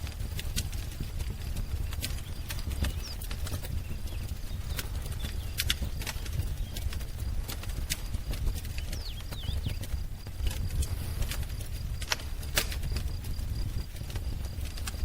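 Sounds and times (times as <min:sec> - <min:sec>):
wood fire crackling and popping: 0:00.0 - 0:15.0
faint bird chirps: 0:01.8 - 0:07.2, 0:08.2 - 0:10.0.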